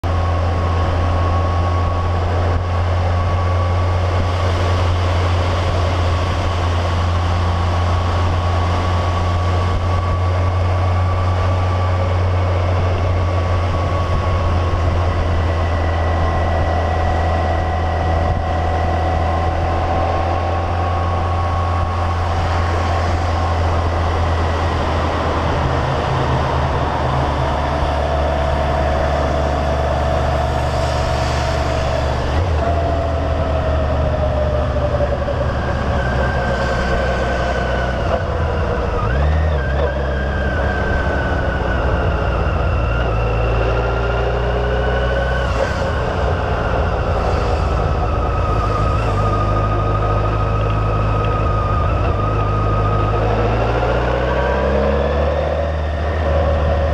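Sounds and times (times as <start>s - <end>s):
motorcycle engine drone: 0.0s - 56.9s
wet road noise: 0.0s - 56.9s
wind noise: 0.0s - 56.9s.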